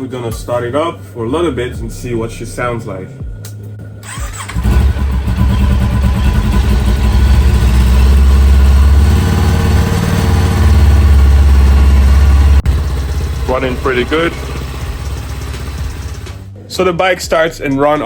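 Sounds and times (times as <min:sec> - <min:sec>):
motorcycle engine starting and idling: 0:04.0 - 0:16.6.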